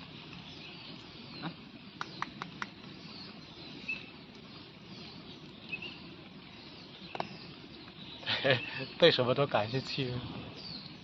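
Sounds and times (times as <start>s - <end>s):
small birds chirping: 0.0s - 11.0s
sharp clicks: 2.0s - 2.8s.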